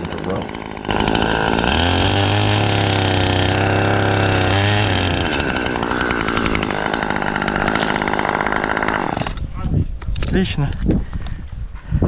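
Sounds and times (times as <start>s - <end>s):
chainsaw running: 0.0s - 9.5s.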